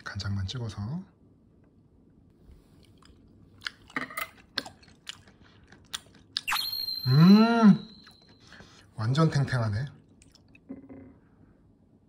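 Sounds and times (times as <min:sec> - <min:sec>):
person chewing with wet mouth clicks: 0:02.8 - 0:06.5, 0:10.2 - 0:10.7.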